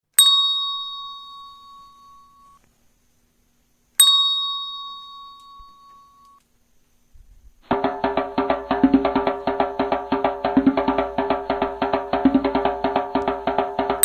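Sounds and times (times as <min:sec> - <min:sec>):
handbell ringing: 0:00.2 - 0:02.6, 0:04.0 - 0:06.4.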